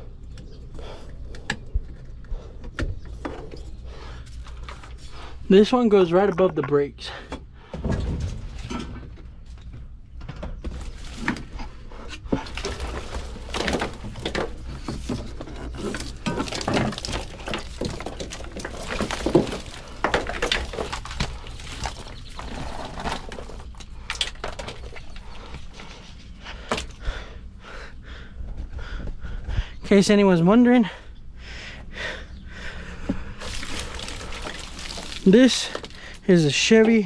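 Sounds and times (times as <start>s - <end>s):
clicks and rustling of wiring: 7.7s - 27.0s, 31.2s - 37.0s.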